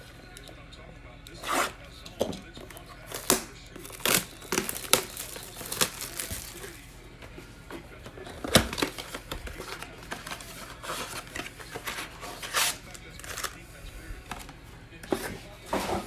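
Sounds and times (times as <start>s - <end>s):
wrapper crinkling: 2.6s - 7.0s, 8.3s - 13.6s.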